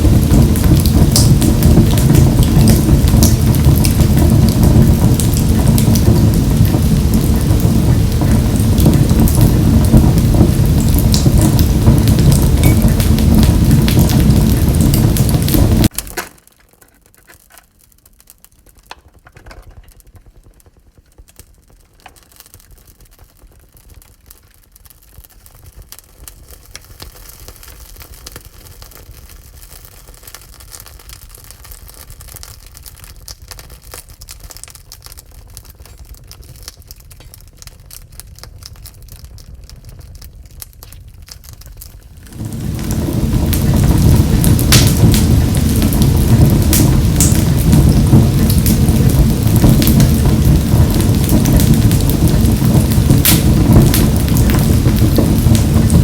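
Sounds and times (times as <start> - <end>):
low rumble: 0.0 - 15.9, 42.1 - 56.0
wood fire crackling: 0.0 - 56.0
loud rushing noise: 42.2 - 56.0.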